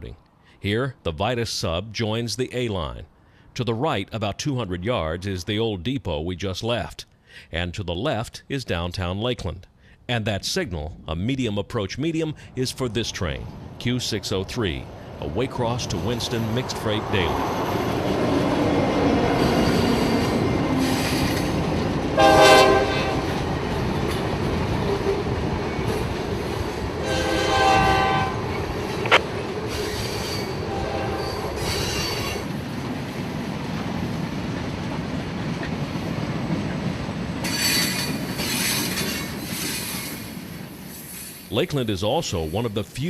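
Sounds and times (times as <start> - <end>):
train rumbling on rails: 12.8 - 42.9
high wheel squeal: 17.3 - 18.1, 19.4 - 21.6, 29.7 - 32.5, 37.4 - 41.6
train horn blasts: 22.2 - 23.4, 27.0 - 28.6, 30.5 - 31.6.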